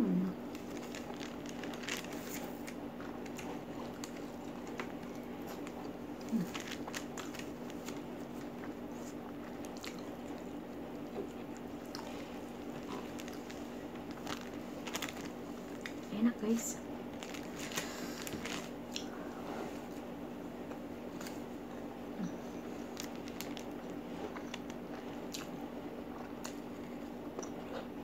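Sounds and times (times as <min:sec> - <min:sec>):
chewing and mouth clicks: 0:00.5 - 0:16.0, 0:18.9 - 0:19.1, 0:22.9 - 0:27.9.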